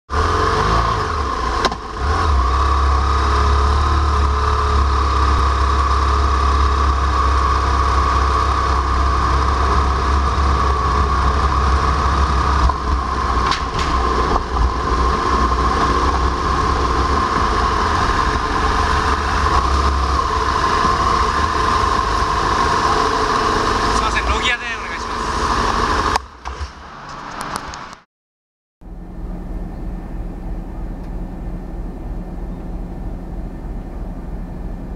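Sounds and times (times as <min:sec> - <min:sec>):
motorcycle engine running: 0:00.1 - 0:26.4.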